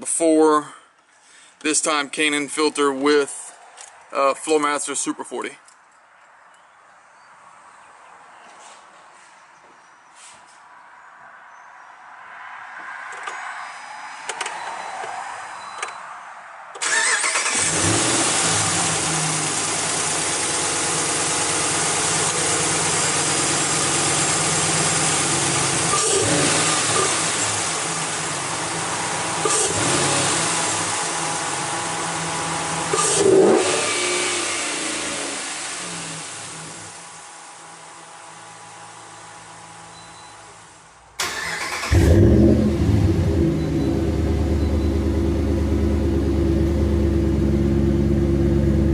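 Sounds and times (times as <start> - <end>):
engine revving: 16.8 - 36.9, 41.2 - 48.9
truck engine starting and idling: 16.8 - 37.0, 41.2 - 48.9.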